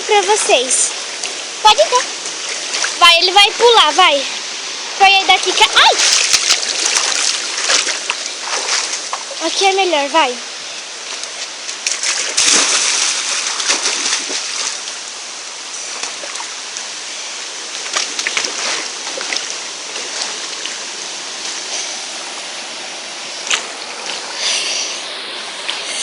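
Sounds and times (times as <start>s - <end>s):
waterfall and stream rushing: 0.0s - 26.0s
splashes in water: 5.4s - 9.5s, 11.2s - 15.0s, 17.8s - 20.8s, 23.4s - 24.3s.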